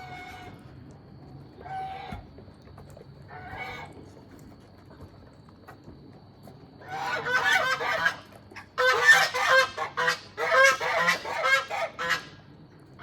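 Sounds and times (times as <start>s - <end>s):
goose honking: 8.8s - 12.3s.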